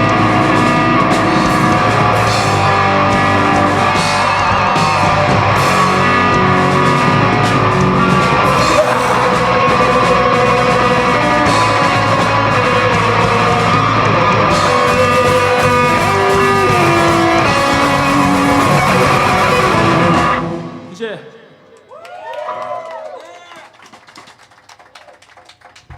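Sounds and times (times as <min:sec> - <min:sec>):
person singing or yelling: 0:00.0 - 0:20.4
live rock band: 0:00.0 - 0:21.1.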